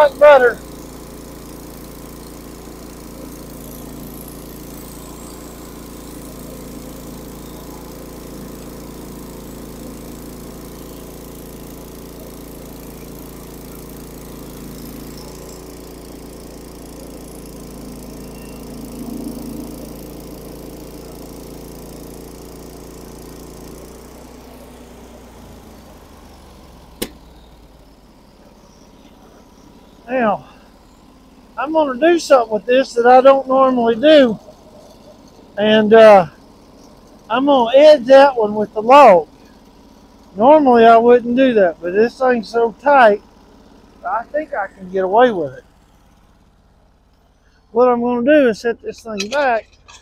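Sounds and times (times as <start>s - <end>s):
sawmill engine running: 0.0s - 50.0s
sharp click: 27.0s - 27.2s.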